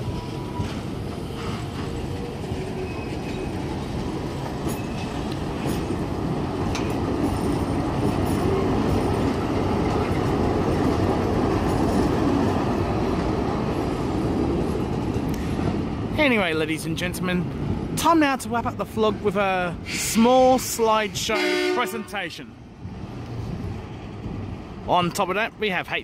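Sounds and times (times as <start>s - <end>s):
train wheels clattering on rails: 0.0s - 15.9s
wheel squeal: 1.4s - 3.6s.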